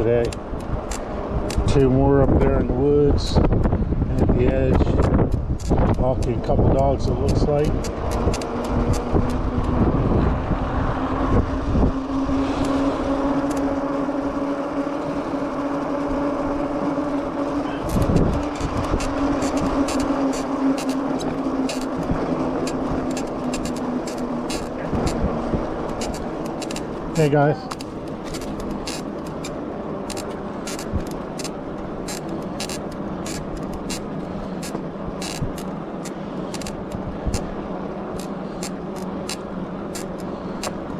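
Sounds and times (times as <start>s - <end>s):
road noise: 0.0s - 40.9s
steady electric motor hum: 0.0s - 40.9s
wind rush: 0.0s - 40.9s.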